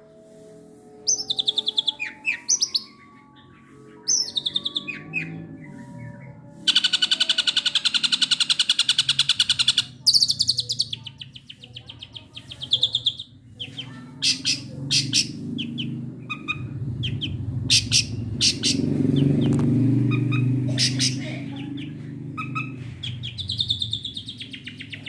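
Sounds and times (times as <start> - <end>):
sharp bird notes: 1.0 - 25.0
bird rattling trill: 14.2 - 18.9.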